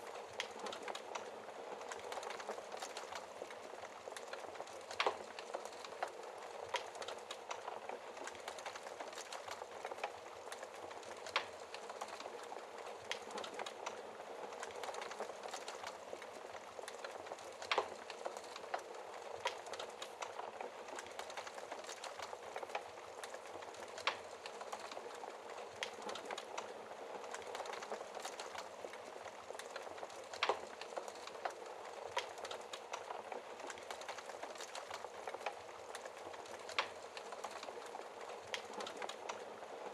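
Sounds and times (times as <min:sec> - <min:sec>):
fire crackling and hissing: 0:00.0 - 0:39.9.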